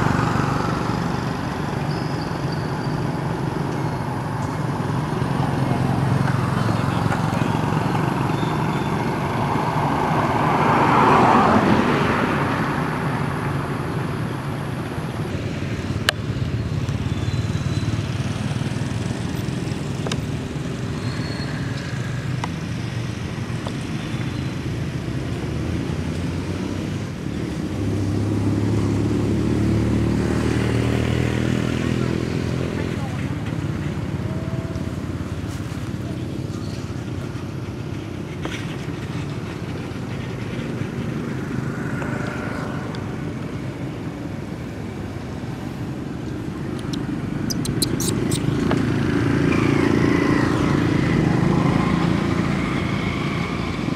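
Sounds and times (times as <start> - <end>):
engine running steadily: 0.0 - 10.4, 30.9 - 53.9
vehicle passing: 0.0 - 53.9.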